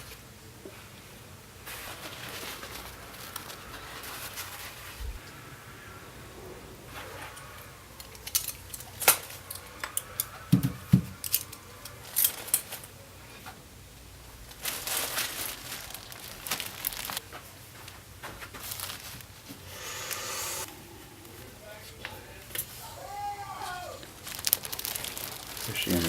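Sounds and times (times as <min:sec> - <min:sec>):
rustling and crinkling: 0:01.6 - 0:05.2, 0:14.2 - 0:19.6, 0:24.0 - 0:26.0.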